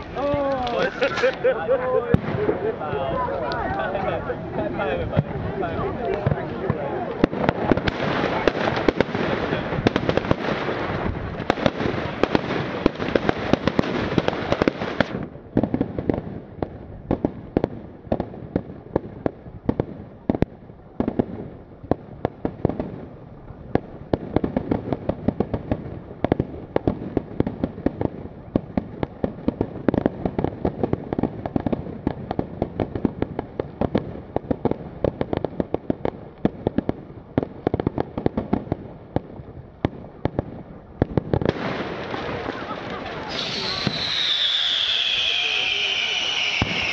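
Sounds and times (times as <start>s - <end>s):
rapid sharp firework bangs: 0.0s - 2.8s, 6.1s - 23.2s, 23.8s - 46.9s
fireworks banging and crackling: 0.0s - 46.9s.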